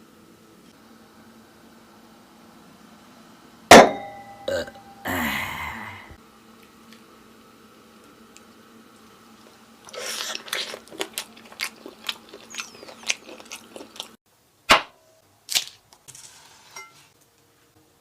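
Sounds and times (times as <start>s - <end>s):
crunchy chewing: 9.0s - 14.2s.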